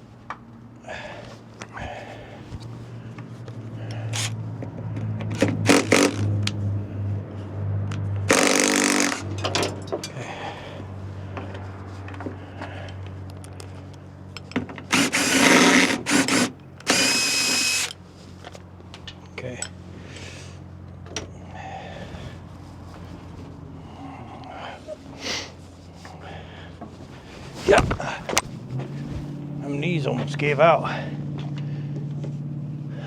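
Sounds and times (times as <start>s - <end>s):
power tool bursts: 5.4s - 6.3s, 8.3s - 9.4s, 14.9s - 18.0s
steady low hum: 5.6s - 33.0s.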